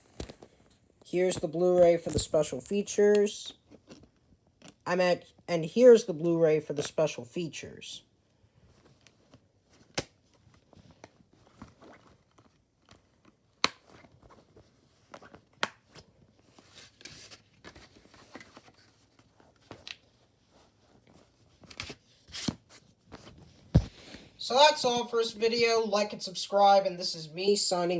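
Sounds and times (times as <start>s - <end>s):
plastic rustling and rubbing: 8.5s - 24.1s.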